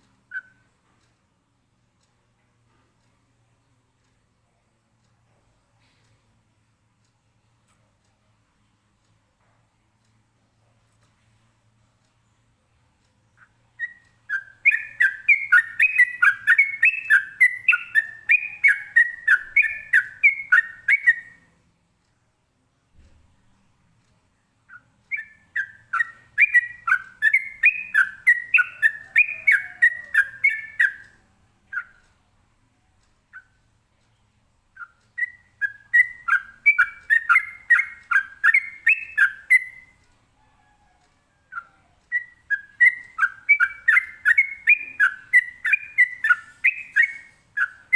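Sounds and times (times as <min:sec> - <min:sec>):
bulbul singing repeated notes: 0:13.4 - 0:21.6, 0:24.6 - 0:32.2, 0:34.7 - 0:40.0, 0:41.5 - 0:47.9.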